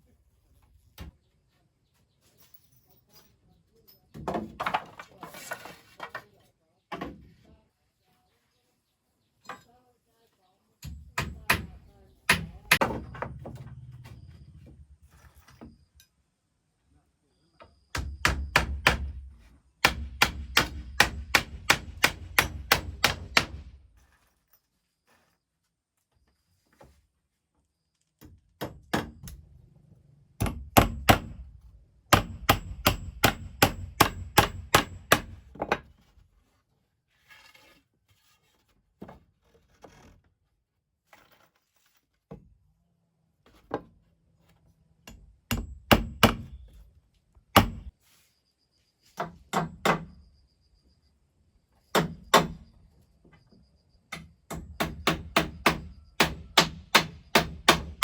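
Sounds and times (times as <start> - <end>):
hammer striking wood: 10.9 - 13.4, 17.9 - 23.8, 28.6 - 29.3, 30.4 - 31.5, 32.1 - 35.8, 45.1 - 46.6, 47.5 - 47.9, 49.2 - 50.1, 51.9 - 52.6, 54.2 - 58.0.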